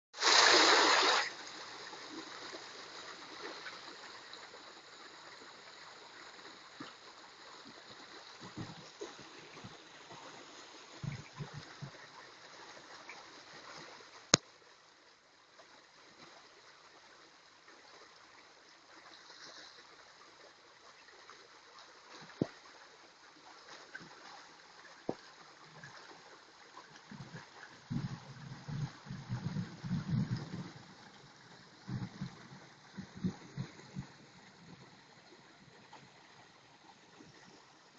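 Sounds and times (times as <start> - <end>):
rainwater rushing and gurgling: 0.2 - 14.4, 23.8 - 37.9.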